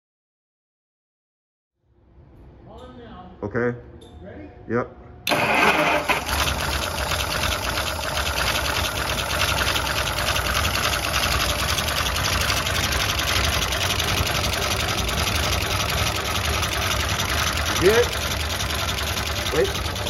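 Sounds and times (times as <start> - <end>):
engine running with clatter: 5.3 - 20.0.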